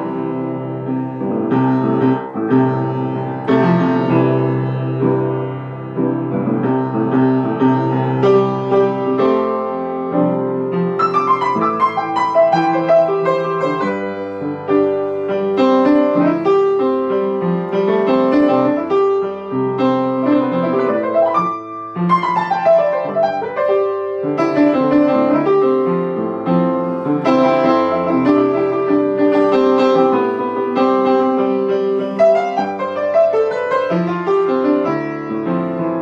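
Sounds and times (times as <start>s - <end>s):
solo piano: 0.0s - 36.0s.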